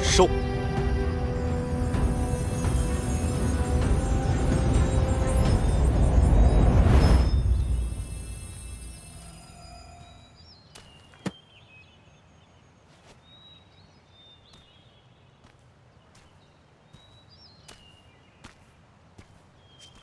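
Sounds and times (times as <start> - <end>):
music: 0.0 - 8.8
faint outdoor ambience: 0.0 - 20.0.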